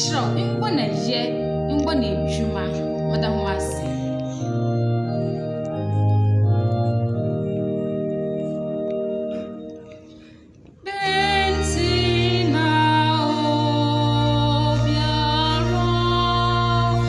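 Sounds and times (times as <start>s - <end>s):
keyboard chords: 0.0s - 17.0s
woman singing: 10.8s - 17.0s.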